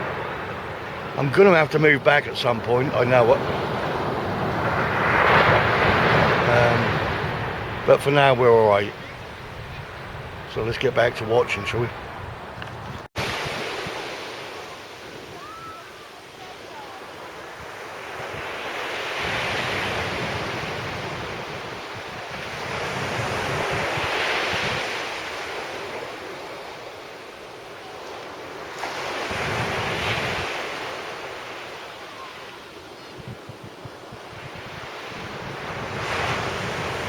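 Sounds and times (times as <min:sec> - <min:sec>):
sea waves breaking on beach: 0:00.0 - 0:37.0
wind buffeting microphone: 0:03.2 - 0:14.3, 0:19.2 - 0:26.1, 0:29.2 - 0:30.8, 0:32.2 - 0:37.0.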